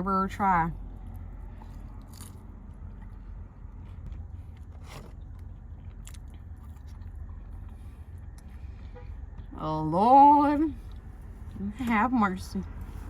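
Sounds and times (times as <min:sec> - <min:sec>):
steady low hum: 0:00.0 - 0:13.0
person chewing food: 0:00.9 - 0:09.5
soft crunches: 0:01.1 - 0:08.8.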